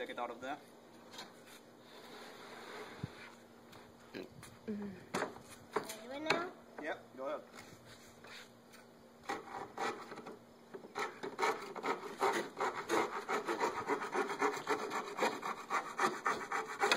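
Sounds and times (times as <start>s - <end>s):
hand saw cutting plywood: 9.2s - 16.9s.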